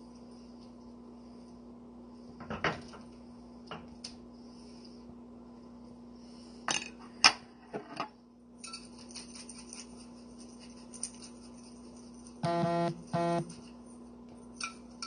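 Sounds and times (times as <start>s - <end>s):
steady low hum: 12.0s - 14.4s.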